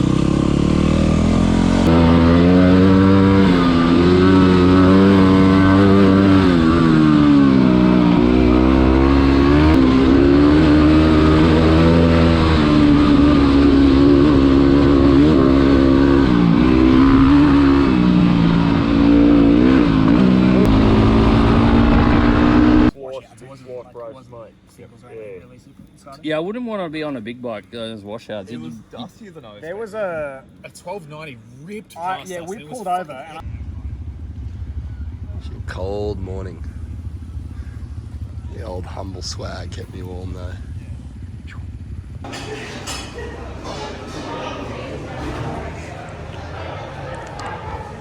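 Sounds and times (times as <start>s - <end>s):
motorcycle engine revving: 0.0s - 23.0s, 33.4s - 42.6s.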